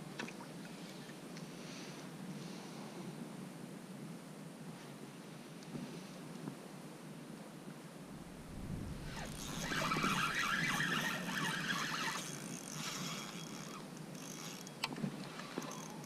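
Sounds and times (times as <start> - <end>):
fishing reel gears whirring: 8.7 - 16.0.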